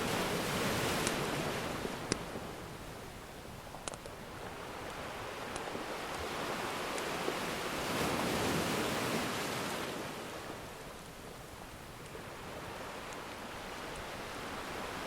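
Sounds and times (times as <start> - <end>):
ocean surf waves: 0.0 - 15.0
faint wood fire crackles: 0.1 - 1.3, 1.9 - 7.4, 10.7 - 15.0.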